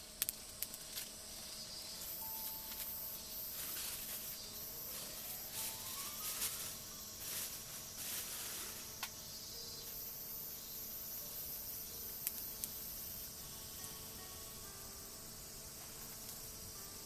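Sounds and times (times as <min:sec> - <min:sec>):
sharp cracks: 0:00.0 - 0:01.1
insects chirping: 0:00.0 - 0:17.0.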